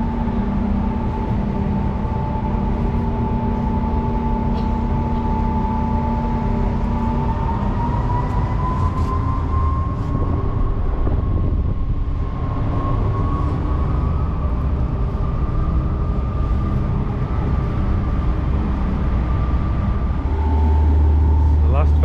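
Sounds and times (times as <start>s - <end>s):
motorcycle engine drone: 0.0s - 22.0s
rushing wind noise: 4.9s - 21.7s.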